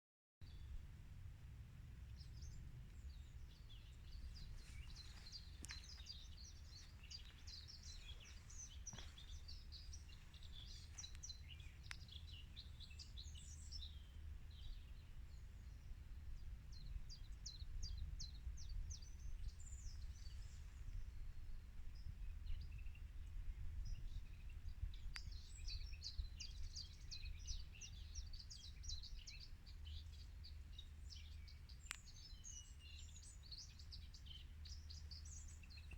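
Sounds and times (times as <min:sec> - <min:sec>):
steady low rumble: 0:00.5 - 0:29.2
small birds chirping and trilling: 0:02.0 - 0:35.9.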